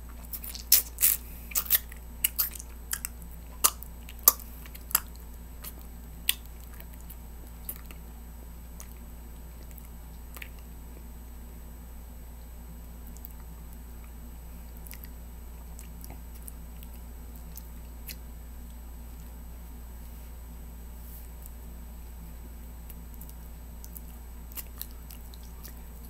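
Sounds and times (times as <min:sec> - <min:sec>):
person chewing with mouth clicks: 0:00.0 - 0:08.1, 0:08.7 - 0:10.7, 0:13.0 - 0:19.4, 0:22.8 - 0:26.0.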